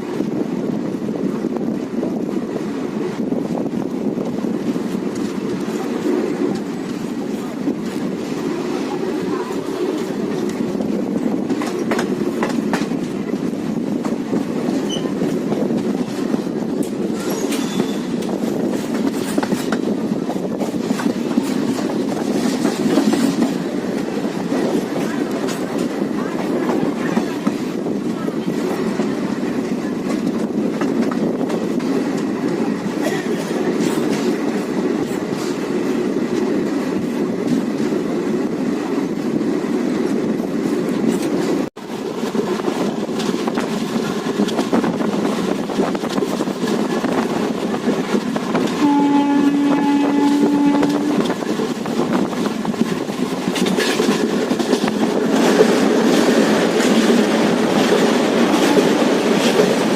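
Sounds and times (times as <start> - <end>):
train rumble and wheel clatter: 0.0 - 59.9
locomotive horn blast: 48.8 - 51.3.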